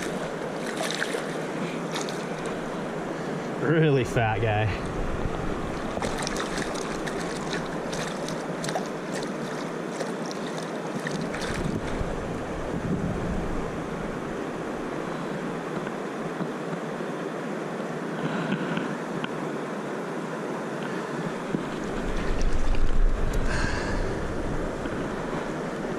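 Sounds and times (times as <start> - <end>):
light clicks and splashes: 0.0 - 2.6, 5.8 - 12.0
river water rushing: 0.0 - 25.9.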